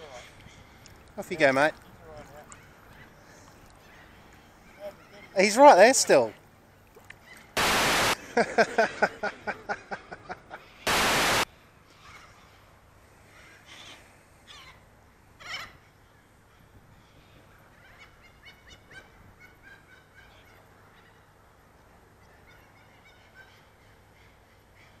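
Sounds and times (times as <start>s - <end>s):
faint bird calls: 1.8s - 7.7s, 11.8s - 25.0s
static hiss: 7.6s - 8.2s, 10.8s - 11.5s.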